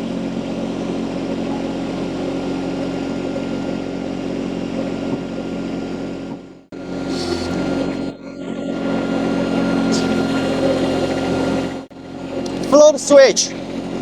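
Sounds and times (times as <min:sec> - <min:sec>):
loader engine running: 0:00.0 - 0:14.0.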